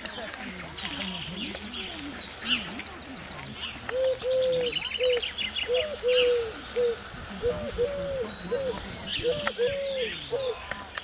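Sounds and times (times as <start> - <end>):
songbird trilling: 0.2 - 10.9
low hooting bird notes: 3.9 - 10.8.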